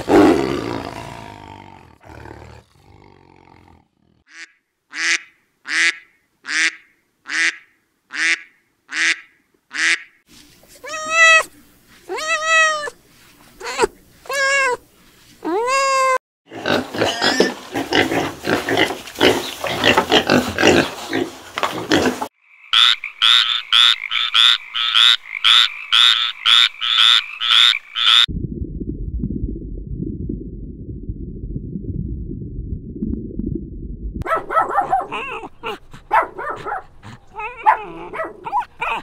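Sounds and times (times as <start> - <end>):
frog croaking: 22.4 - 28.3
piglets squealing and grunting: 35.1 - 35.9, 37.1 - 39.0.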